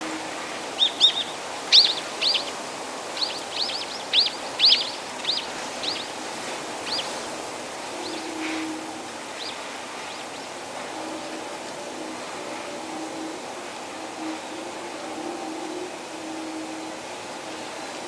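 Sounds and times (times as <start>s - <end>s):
blizzard wind hissing: 0.0s - 18.0s
small bird chirping: 0.8s - 6.2s, 6.8s - 7.2s.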